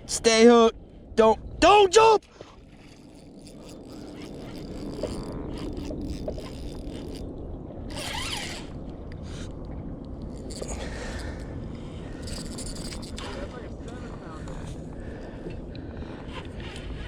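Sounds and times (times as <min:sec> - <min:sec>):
fishing reel ratcheting whir: 0:02.5 - 0:09.0, 0:10.2 - 0:11.5, 0:12.1 - 0:13.6.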